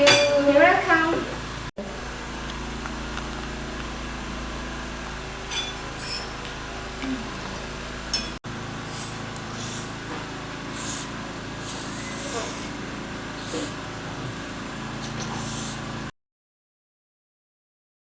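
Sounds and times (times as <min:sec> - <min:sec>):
steady background hum: 0:00.0 - 0:16.1.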